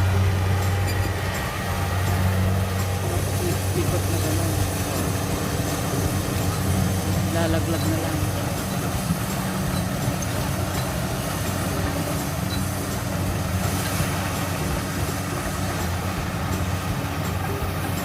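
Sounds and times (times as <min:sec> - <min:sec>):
harvesting machine running: 0:00.0 - 0:18.0.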